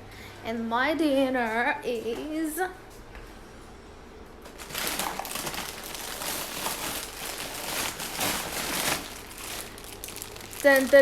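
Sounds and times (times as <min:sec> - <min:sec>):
plastic packaging crinkling: 0:04.5 - 0:11.0.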